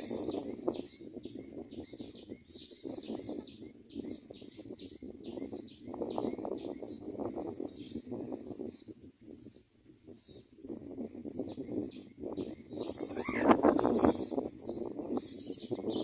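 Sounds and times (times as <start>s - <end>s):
birds chirping: 0.0s - 16.0s
wings fluttering: 12.8s - 14.5s.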